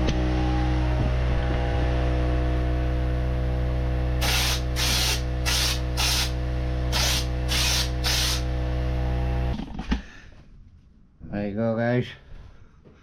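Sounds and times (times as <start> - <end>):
steady hum: 0.0 - 9.6
spray gun hissing: 4.2 - 8.5.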